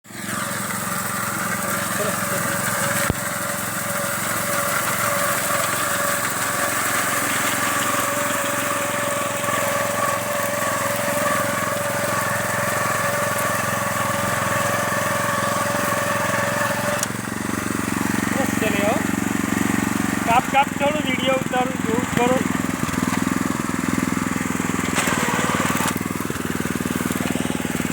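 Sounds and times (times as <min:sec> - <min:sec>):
harvesting machine engine running: 0:00.1 - 0:27.9.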